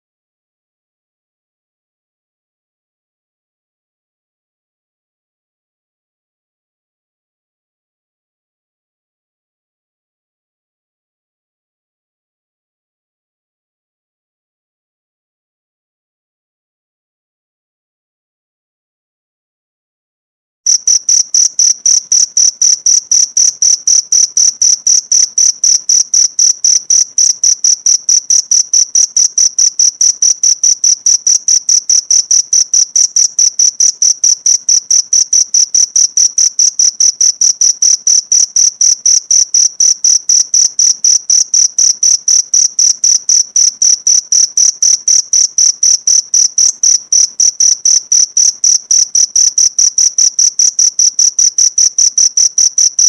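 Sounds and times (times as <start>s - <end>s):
cricket chirping: 20.7s - 53.0s.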